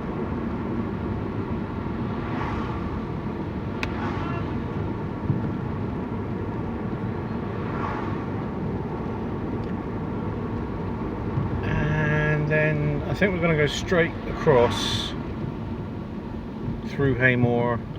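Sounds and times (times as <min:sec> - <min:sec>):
road vehicle rumble: 0:00.0 - 0:17.9
wet road noise: 0:00.0 - 0:17.9.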